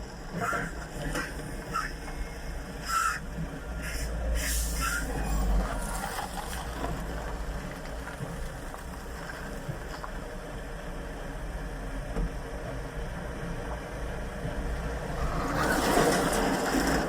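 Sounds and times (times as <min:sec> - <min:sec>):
diesel engine rumbling: 0:00.0 - 0:17.0
brief hissing bursts: 0:03.8 - 0:05.1.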